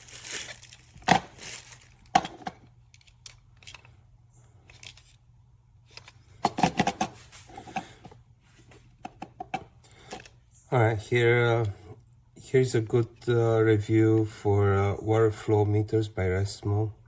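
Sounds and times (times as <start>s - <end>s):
plastic packaging rustling: 0.0s - 4.0s
small hard parts clicking and knocking: 0.2s - 4.0s.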